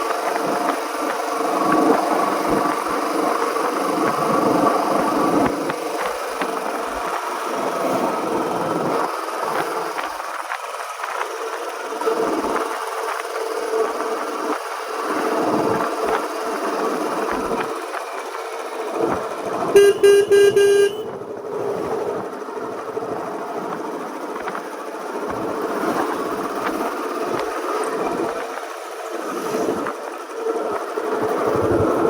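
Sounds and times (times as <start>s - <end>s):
motorcycle engine running: 18.9s - 21.4s
horn beeps: 19.8s - 21.2s.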